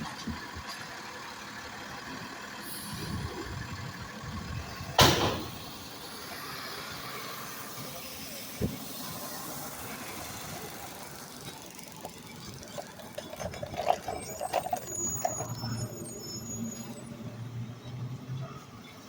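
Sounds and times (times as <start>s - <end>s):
truck engine running low: 0.0s - 19.0s
high squeal: 12.2s - 17.4s.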